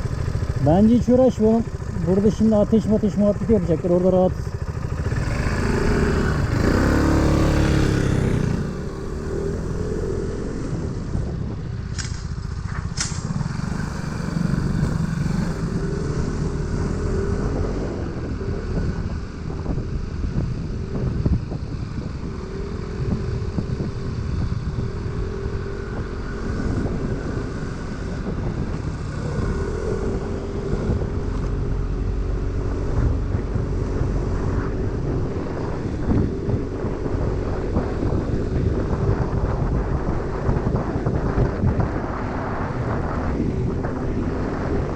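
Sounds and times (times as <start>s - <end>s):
motor scooter engine running: 0.0s - 10.4s
wind noise on microphone: 0.0s - 44.9s.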